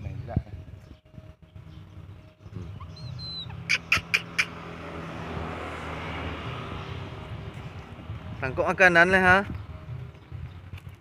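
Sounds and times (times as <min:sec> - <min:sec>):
bird chirps: 0:00.6 - 0:04.6
bird whistle: 0:02.8 - 0:04.6.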